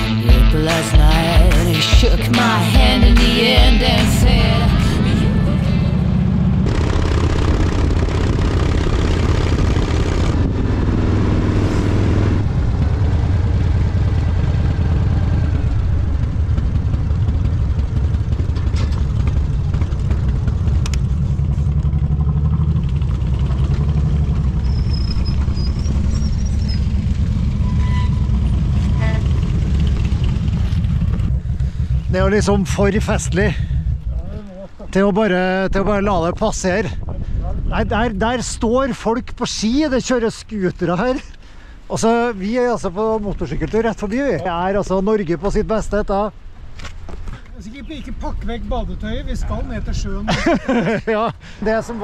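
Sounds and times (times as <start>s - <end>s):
motorcycle engines rumbling: 0.0s - 52.0s.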